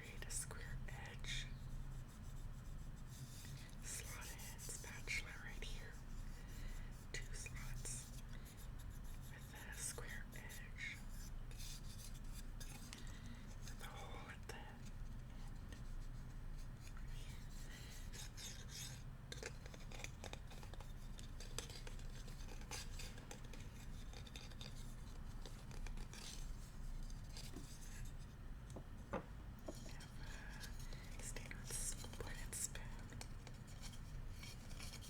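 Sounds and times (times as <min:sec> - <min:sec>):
bamboo utensils tapping and scraping: 0:28.6 - 0:30.0.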